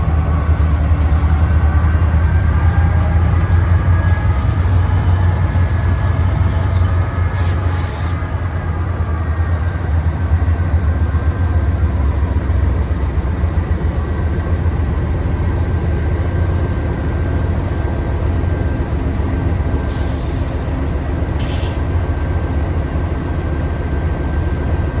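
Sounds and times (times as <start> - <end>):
diesel locomotive rumble: 0.0 - 25.0
air hissing: 6.8 - 8.3, 19.9 - 20.7, 21.4 - 21.8.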